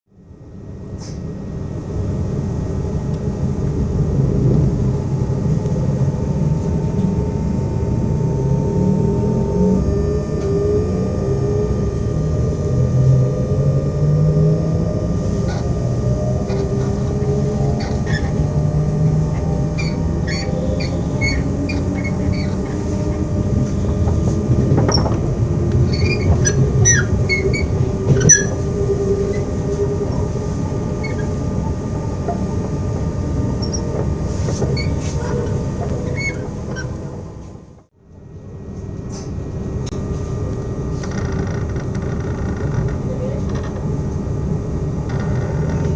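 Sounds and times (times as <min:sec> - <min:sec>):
electric train traction whine: 0:00.2 - 0:45.9
wheel squeals and creaks: 0:15.4 - 0:15.8, 0:16.4 - 0:18.5, 0:19.3 - 0:25.2, 0:25.8 - 0:31.5, 0:33.5 - 0:37.1.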